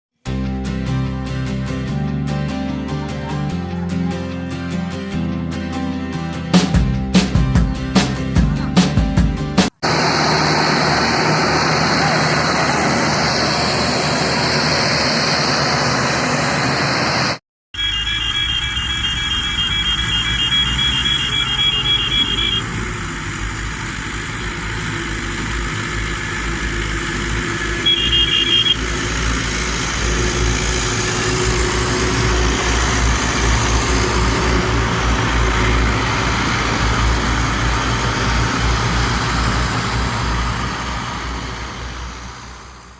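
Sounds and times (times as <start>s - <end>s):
tractor diesel engines droning: 9.8s - 42.9s
rapid high-pitched beeping: 17.9s - 22.6s.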